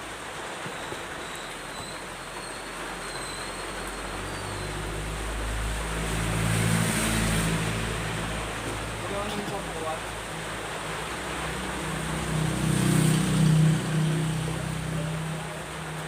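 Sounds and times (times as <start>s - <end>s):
rain hissing: 0.0s - 16.0s
vehicle engine passing by: 3.8s - 16.0s.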